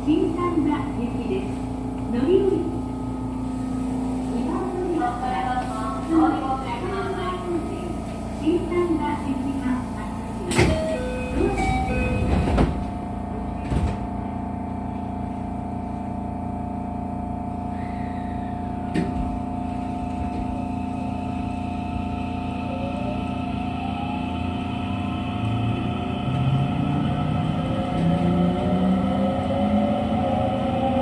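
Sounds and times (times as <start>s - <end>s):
hum of train equipment: 0.0s - 31.0s
rising whine of train motors: 0.0s - 31.0s.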